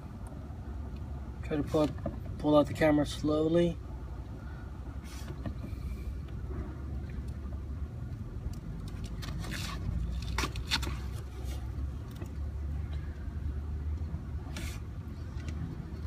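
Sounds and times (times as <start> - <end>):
short scraping noises: 5.0 - 6.0, 14.4 - 14.9.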